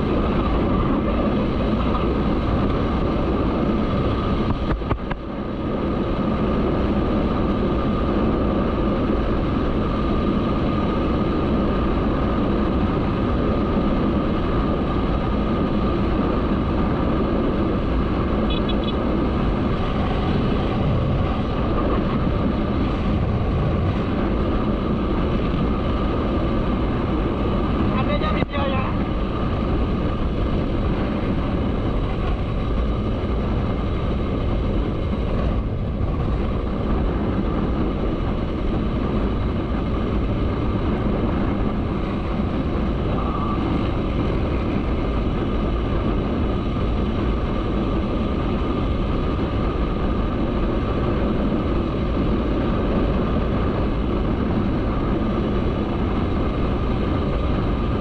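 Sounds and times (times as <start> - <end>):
motorcycle running: 0.0 - 58.0
wind on microphone: 0.0 - 58.0.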